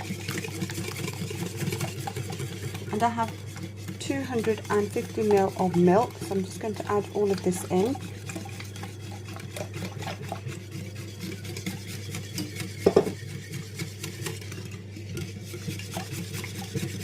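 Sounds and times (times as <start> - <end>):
whisk knocking bowl: 0.0 - 17.0
whisk scraping and tapping bowl: 0.0 - 17.0.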